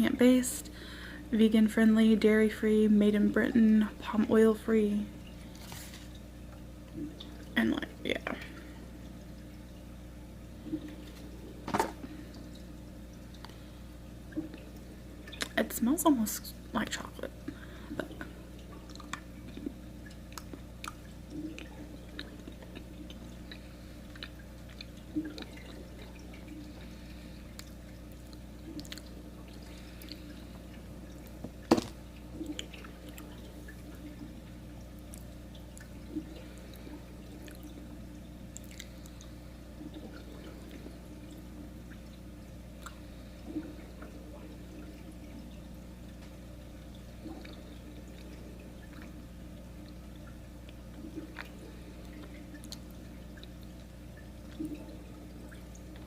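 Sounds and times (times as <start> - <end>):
low room hum: 0.0 - 56.0
person chewing: 38.6 - 38.9.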